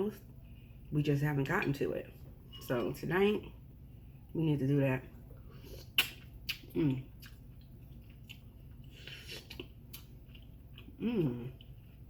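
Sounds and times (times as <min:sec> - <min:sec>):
wet chewing and lip-smacking: 0:05.4 - 0:12.0
person humming mm: 0:11.0 - 0:11.6.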